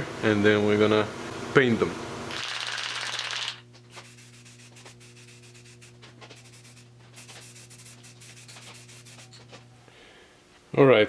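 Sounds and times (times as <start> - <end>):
steady low hum: 3.1 - 11.0
scraping and rubbing by hand: 3.9 - 9.7.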